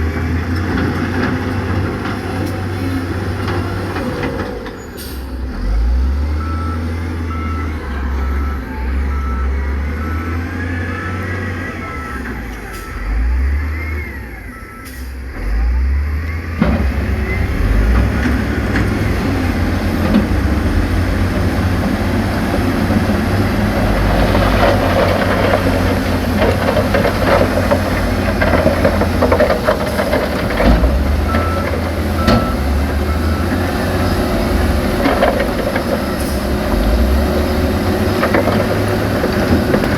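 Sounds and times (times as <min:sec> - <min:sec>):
diesel heavy machinery running: 0:00.0 - 0:39.9
reversing alarm beeping: 0:06.3 - 0:16.6, 0:28.4 - 0:34.4
rock clattering and grinding: 0:23.0 - 0:31.4.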